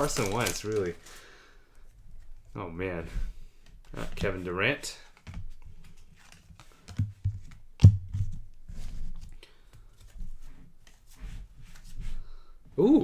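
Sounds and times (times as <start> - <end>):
trading cards rustling: 0.0 - 1.4.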